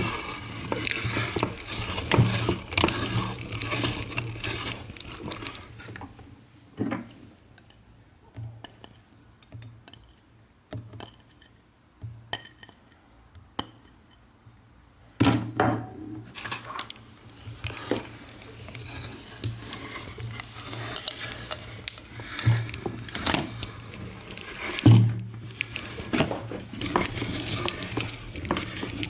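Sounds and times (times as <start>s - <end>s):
meat grinder grinding candy: 0.0s - 6.2s, 16.3s - 29.0s.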